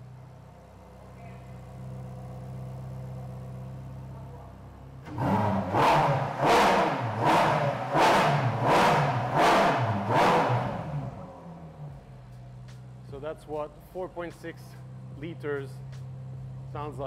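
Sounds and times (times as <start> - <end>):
car engine idling: 0.0 - 17.0
engine revving hard: 5.0 - 11.7.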